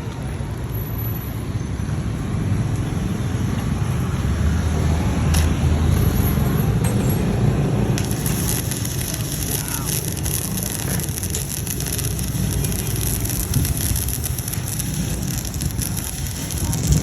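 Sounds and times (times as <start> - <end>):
welding arc crackling: 3.4 - 17.0.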